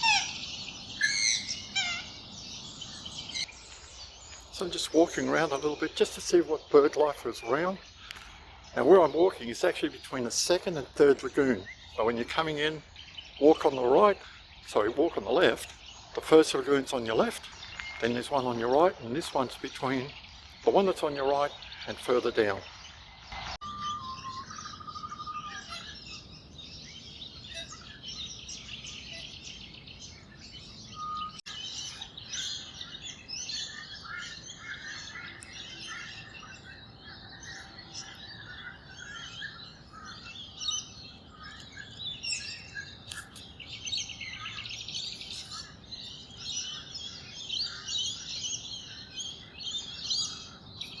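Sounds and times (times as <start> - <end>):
small birds chirping and twittering: 0.0 - 51.0.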